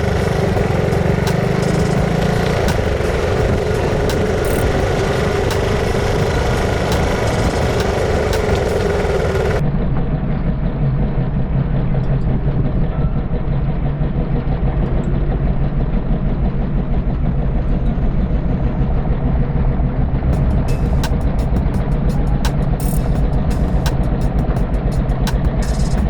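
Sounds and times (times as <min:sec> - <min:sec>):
motorcycle engine running: 0:00.0 - 0:09.6, 0:12.2 - 0:26.0.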